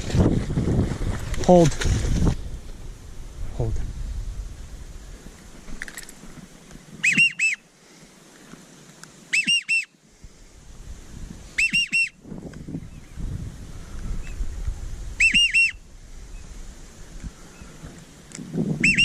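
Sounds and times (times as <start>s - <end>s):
wind rumble on microphone: 0.0s - 7.0s, 10.2s - 19.0s
duck whistle call: 7.0s - 7.6s, 9.3s - 9.9s, 11.6s - 12.2s, 15.2s - 15.8s.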